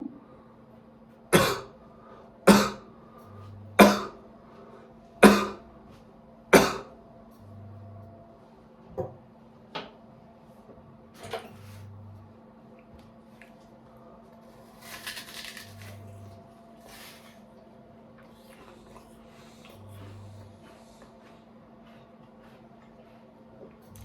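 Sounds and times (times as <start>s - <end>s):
person coughing: 1.4s - 1.8s, 2.5s - 2.9s, 3.8s - 4.2s, 5.2s - 5.7s, 6.6s - 7.0s.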